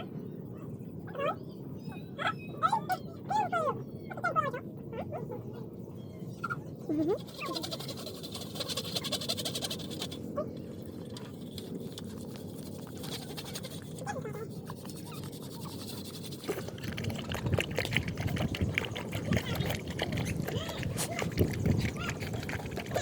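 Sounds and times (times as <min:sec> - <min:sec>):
young animals squeaking: 0:06.3 - 0:10.6, 0:12.6 - 0:23.0
wet suckling noises: 0:07.2 - 0:23.0.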